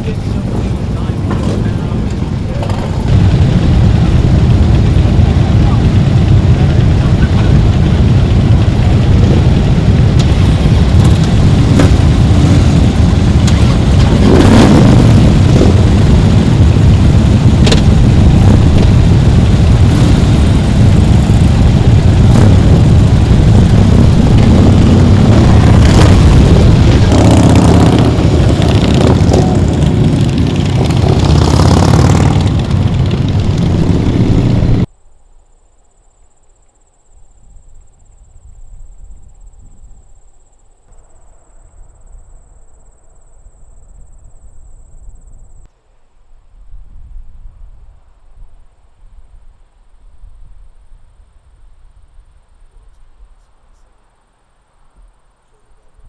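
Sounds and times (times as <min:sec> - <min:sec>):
motorcycle engines rumbling: 0:00.0 - 0:34.9.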